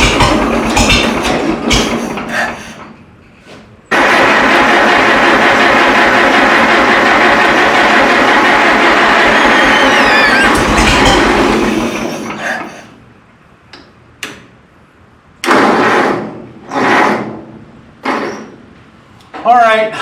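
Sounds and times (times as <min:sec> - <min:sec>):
tractor engine cranking: 0:00.0 - 0:02.4, 0:03.9 - 0:12.4.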